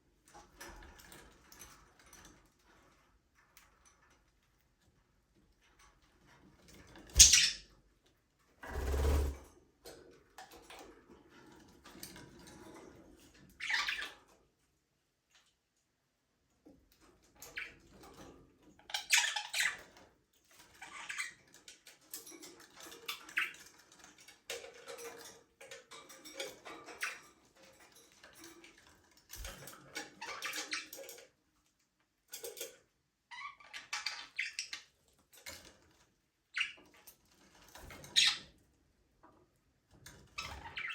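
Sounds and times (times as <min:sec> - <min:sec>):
budgerigars chirping and chattering: 0:07.2 - 0:07.6.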